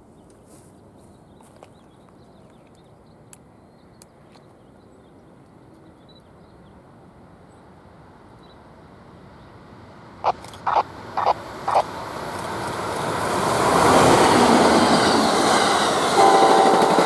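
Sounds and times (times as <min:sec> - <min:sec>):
train rumble: 0:09.1 - 0:17.0
faint bird chirps: 0:10.7 - 0:11.8.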